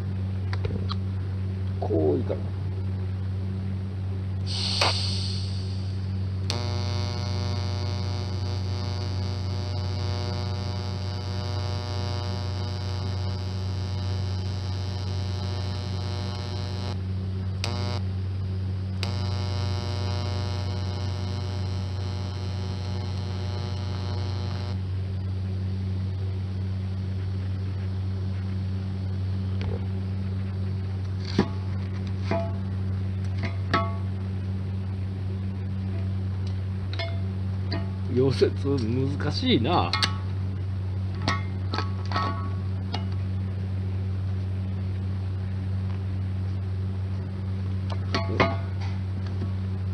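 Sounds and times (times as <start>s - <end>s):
mains hum: 0.0s - 49.9s
welding arc buzzing: 4.4s - 25.6s.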